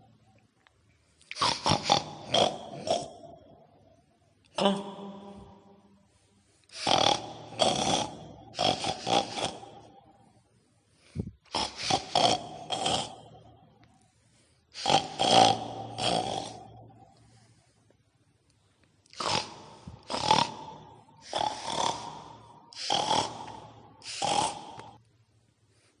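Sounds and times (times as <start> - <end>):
pig-like snorting grunts: 1.3 - 3.4, 6.7 - 10.0, 11.4 - 13.5, 14.8 - 17.1, 19.1 - 25.0.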